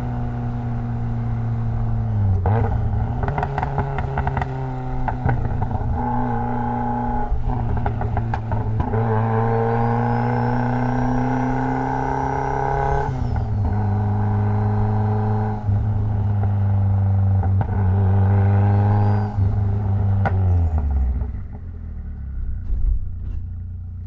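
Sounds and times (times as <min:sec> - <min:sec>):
car engine running: 0:10.0 - 0:24.0.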